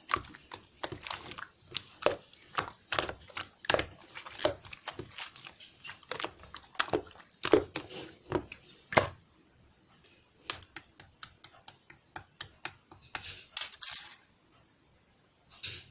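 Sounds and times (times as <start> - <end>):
clicks and taps: 10.5 - 13.4.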